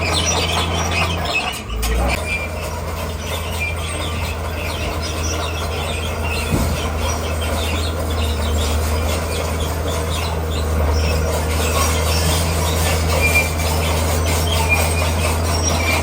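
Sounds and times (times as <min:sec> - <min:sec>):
bulldozer diesel engine running: 0:00.0 - 0:16.0
steel tracks squealing and clattering: 0:00.0 - 0:16.0.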